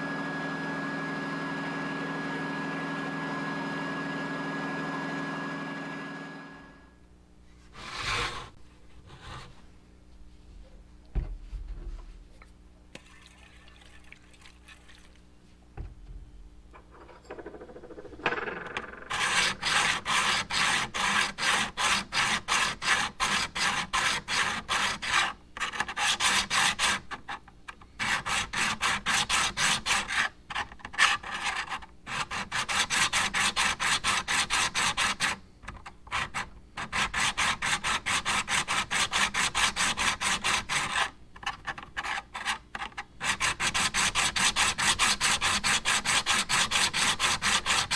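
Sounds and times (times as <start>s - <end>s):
tool rubbing against metal: 7.5s - 9.7s, 16.8s - 22.4s.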